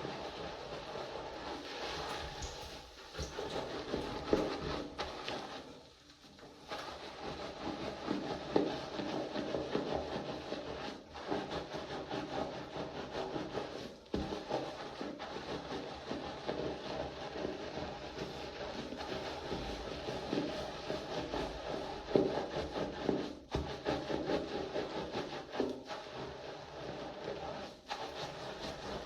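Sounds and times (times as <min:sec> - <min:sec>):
hands scrubbing wet hair: 0:00.0 - 0:29.0.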